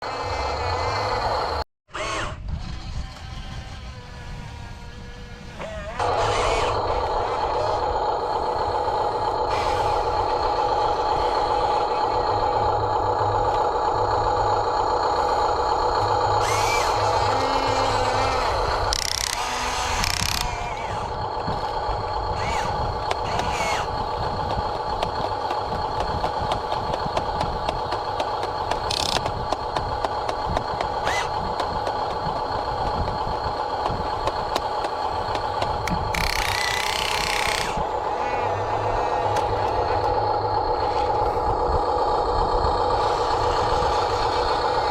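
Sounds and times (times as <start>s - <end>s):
electric motors whining: 0.0s - 44.9s.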